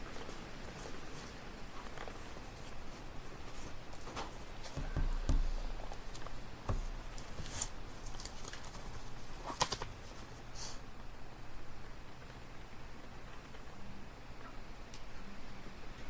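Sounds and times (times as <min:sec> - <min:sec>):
people handling things: 0:00.0 - 0:10.8
steady low hum: 0:00.0 - 0:16.0.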